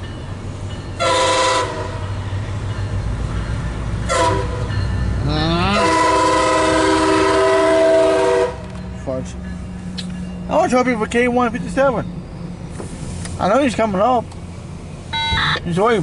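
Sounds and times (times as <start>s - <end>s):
train rumble: 0.0s - 16.0s
train air horn blasts: 1.0s - 2.1s, 4.0s - 4.8s, 5.6s - 8.7s.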